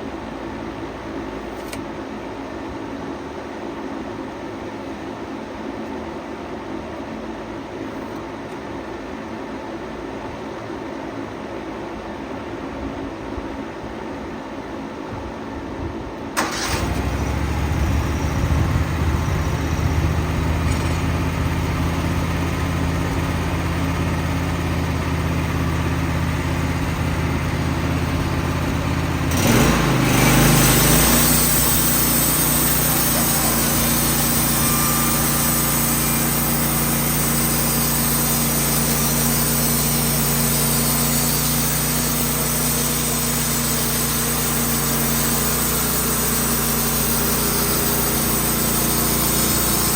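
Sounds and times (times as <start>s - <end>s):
sawmill engine running: 16.4s - 49.9s.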